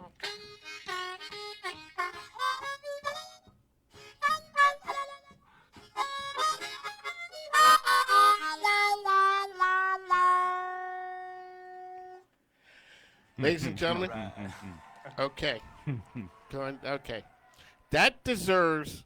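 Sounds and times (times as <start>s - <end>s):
blues harmonica: 0.0s - 14.1s.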